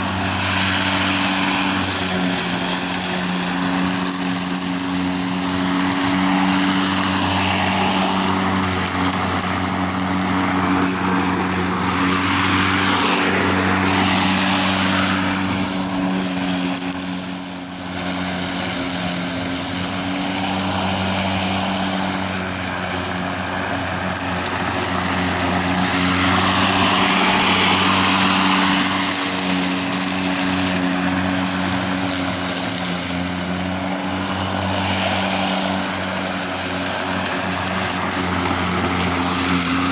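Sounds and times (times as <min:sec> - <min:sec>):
electric lawn mower running: 0:00.0 - 0:39.9.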